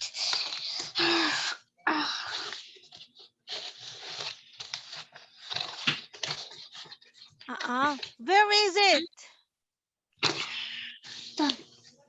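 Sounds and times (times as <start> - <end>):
rustling handling noise: 2.6 - 9.0.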